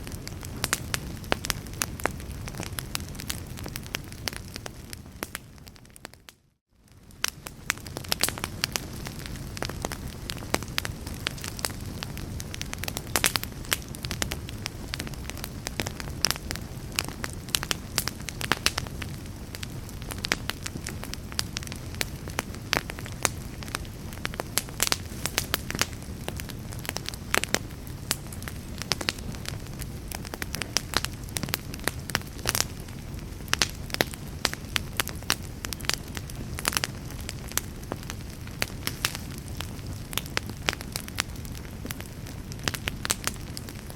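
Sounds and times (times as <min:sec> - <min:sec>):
low rush of flame: 0:00.0 - 0:06.1, 0:06.8 - 0:43.9
wood fire crackling and popping: 0:00.0 - 0:43.9.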